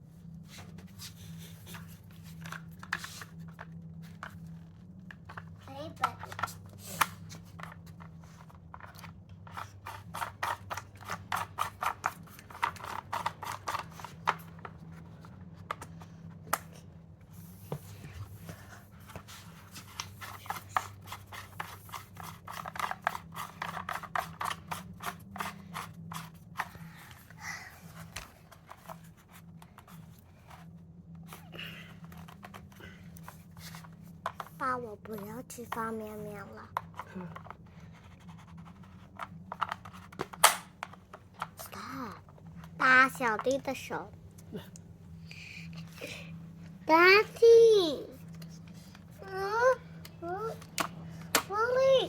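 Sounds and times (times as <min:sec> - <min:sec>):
small sharp clicks and scraping: 0:01.6 - 0:16.8, 0:18.5 - 0:36.0.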